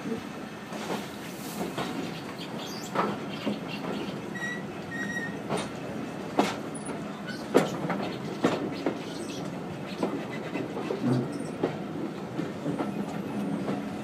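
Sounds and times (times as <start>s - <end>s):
railway carriage rumbling: 0.0s - 14.0s
brief high squeaks: 4.4s - 5.4s.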